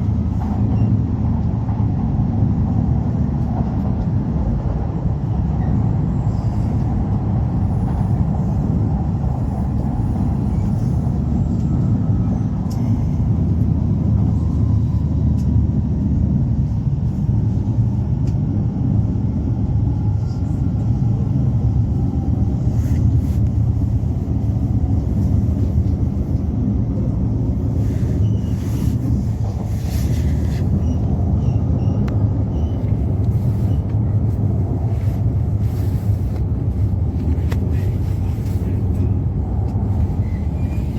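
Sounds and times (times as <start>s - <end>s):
high-speed train running rumble: 0.0s - 40.9s.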